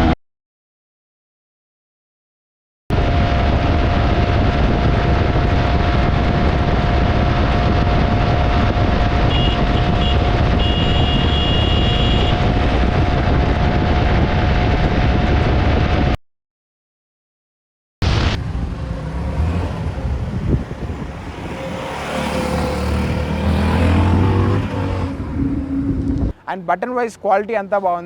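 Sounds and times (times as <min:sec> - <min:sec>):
motorcycle engine running: 0:02.9 - 0:14.8, 0:18.4 - 0:26.3
wind rush: 0:02.9 - 0:16.2, 0:18.0 - 0:26.4.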